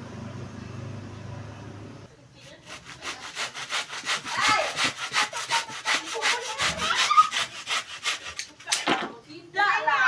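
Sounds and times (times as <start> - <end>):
hand saw cutting wood: 2.4 - 8.8.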